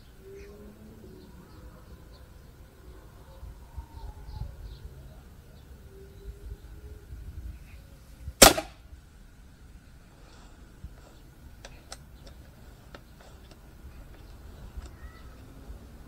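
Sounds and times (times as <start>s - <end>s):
air rifle shot: 8.4s - 8.8s.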